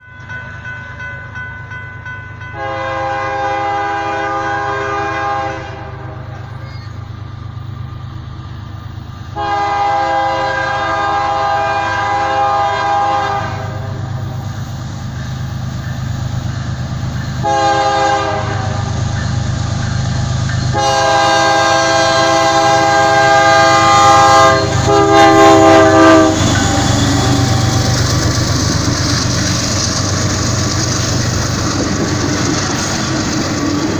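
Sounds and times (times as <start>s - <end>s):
train wheel noise: 0.0s - 33.9s
locomotive engine rumble: 0.1s - 33.9s
locomotive air horn: 2.6s - 6.4s, 9.4s - 14.0s, 17.4s - 18.8s, 20.7s - 28.0s.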